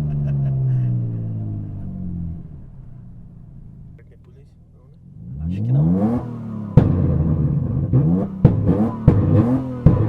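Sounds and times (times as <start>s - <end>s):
car engine revving hard: 5.0s - 10.0s.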